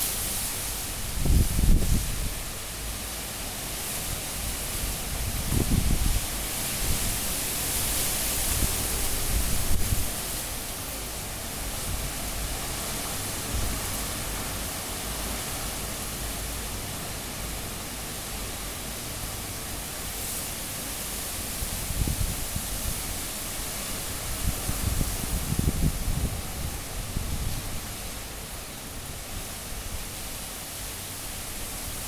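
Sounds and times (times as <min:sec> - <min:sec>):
strong wind gusts: 0:00.8 - 0:02.8, 0:04.1 - 0:14.5, 0:21.2 - 0:30.3.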